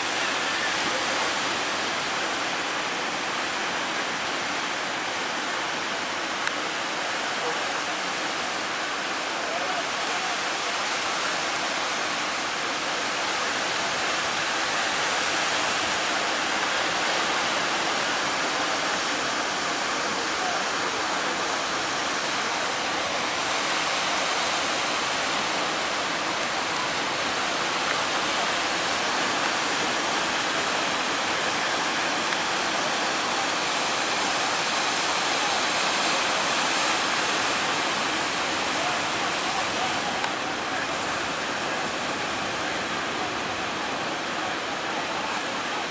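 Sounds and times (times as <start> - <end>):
sea waves breaking: 11.8 - 45.9.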